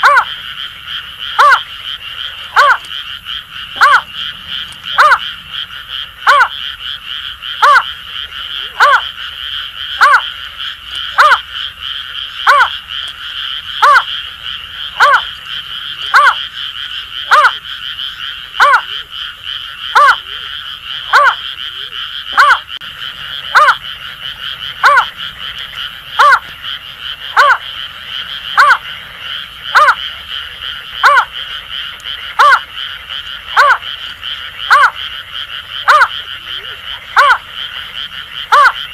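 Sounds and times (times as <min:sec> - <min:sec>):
chorus of frogs: 0:00.0 - 0:38.9.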